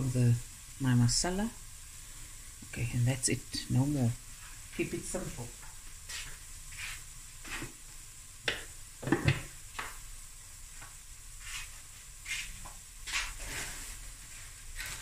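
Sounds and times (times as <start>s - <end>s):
vegetables sizzling in oil: 0.0s - 15.0s
oil crackling and popping: 5.6s - 11.1s, 12.6s - 15.0s.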